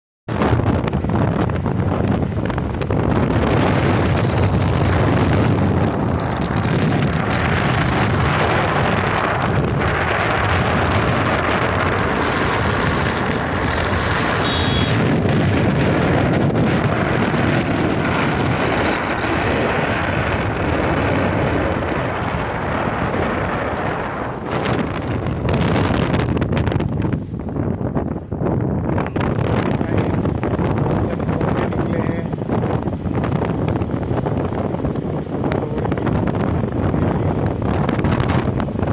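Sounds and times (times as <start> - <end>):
wind rushing over microphone: 0.3 - 38.9
motorcycle engine: 0.5 - 28.0.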